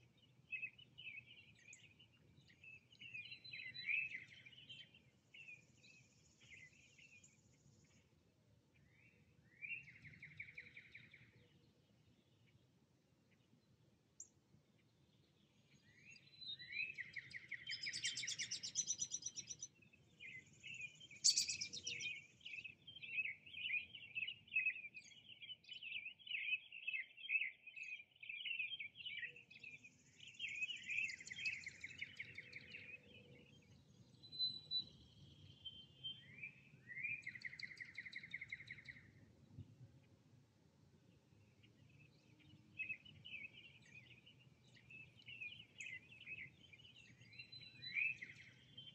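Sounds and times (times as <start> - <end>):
songbird trill with upward sweep: 20.8 - 22.0.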